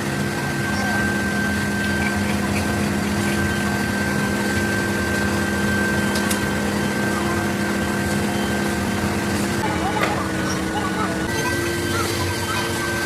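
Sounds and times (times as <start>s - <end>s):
thin high whine: 0.0s - 13.0s
workshop machine humming: 0.0s - 13.0s.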